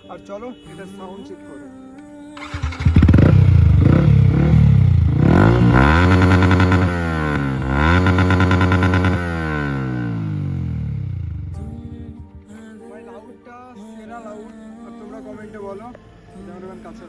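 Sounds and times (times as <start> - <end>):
motorcycle engine revving loudly: 2.4 - 11.7.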